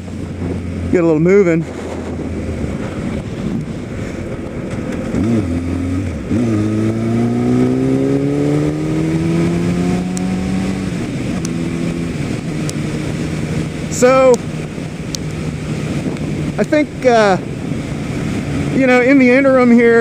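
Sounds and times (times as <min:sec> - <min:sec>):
motorcycle engine revving: 0:00.0 - 0:19.9.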